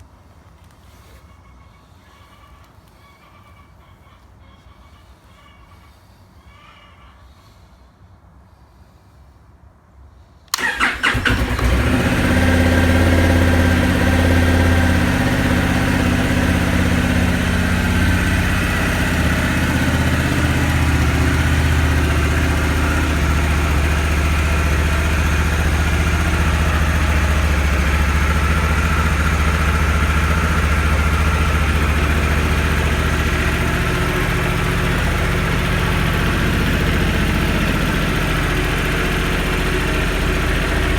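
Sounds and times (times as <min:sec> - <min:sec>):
motorcycle engine starting and idling: 0:10.5 - 0:40.9.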